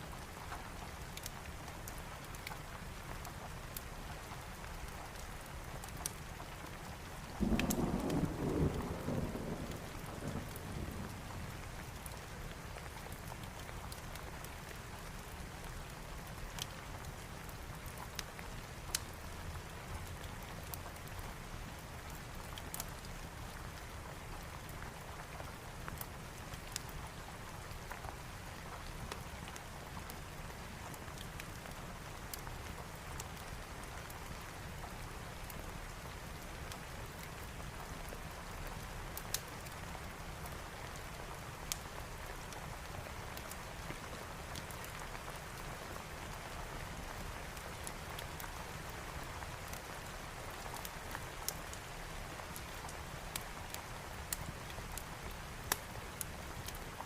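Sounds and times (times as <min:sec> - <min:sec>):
steady rain falling: 0:00.0 - 0:57.0
low thunder rumble: 0:07.4 - 0:11.5
wood fire crackling: 0:09.3 - 0:21.1, 0:22.0 - 0:57.0.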